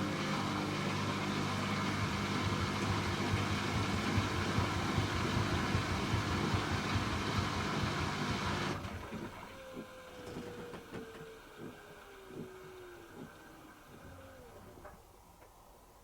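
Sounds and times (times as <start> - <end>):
washing machine drum spinning: 0.0 - 14.9.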